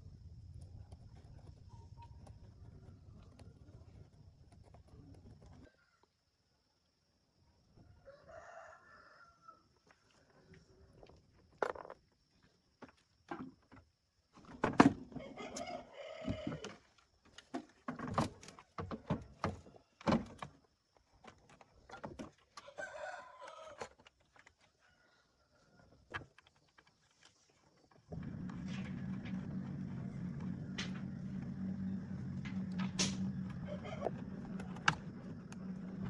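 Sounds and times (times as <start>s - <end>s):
rooster crowing: 7.8s - 9.7s, 15.2s - 16.7s, 22.6s - 23.9s, 28.7s - 34.8s.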